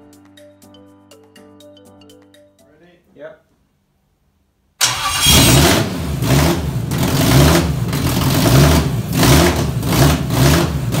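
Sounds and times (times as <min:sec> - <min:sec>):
car engine revving: 0:04.8 - 0:11.0.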